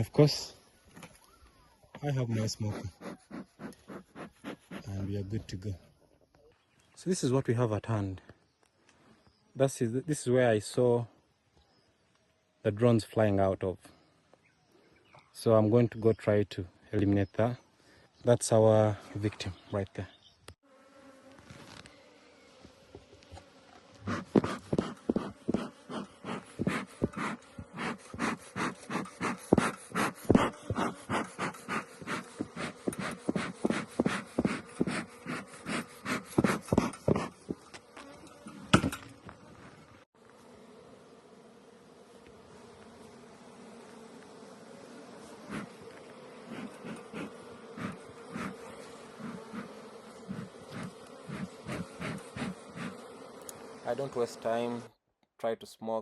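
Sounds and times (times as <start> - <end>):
honeybees buzzing: 2.1 - 5.4, 20.2 - 54.9.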